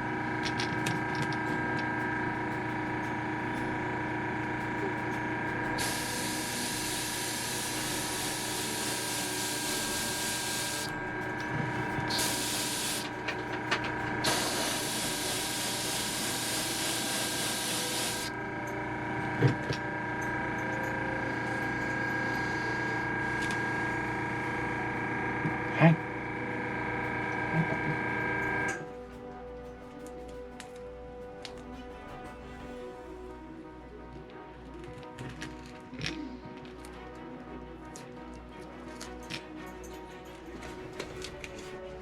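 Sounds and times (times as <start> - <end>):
steady hum: 0.0 - 34.5
airbrush spraying hiss: 5.8 - 10.9, 12.1 - 13.2, 14.2 - 18.3.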